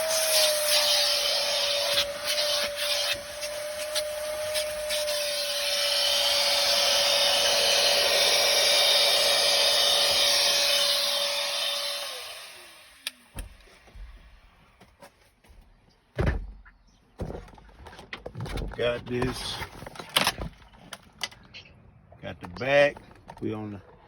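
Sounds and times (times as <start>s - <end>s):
vacuum cleaner running: 0.0s - 13.9s.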